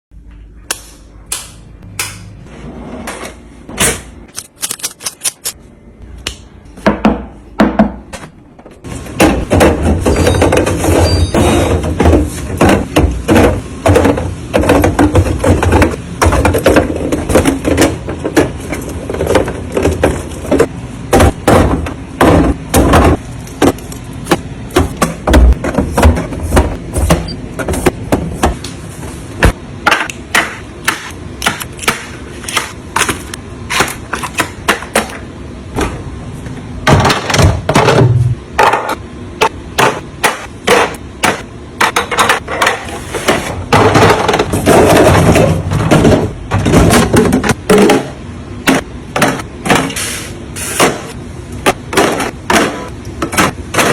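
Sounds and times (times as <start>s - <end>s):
containers clacking and thudding: 8.9s - 28.6s, 40.7s - 50.0s.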